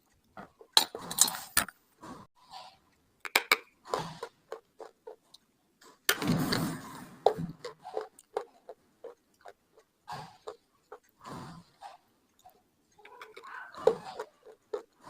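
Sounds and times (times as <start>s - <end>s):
slate pencil crunched and chewed: 3.8s - 6.0s, 7.3s - 15.0s.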